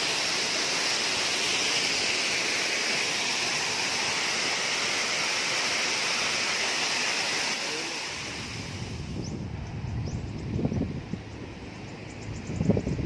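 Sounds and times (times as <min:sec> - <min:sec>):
flowing water rushing: 0:00.0 - 0:09.2.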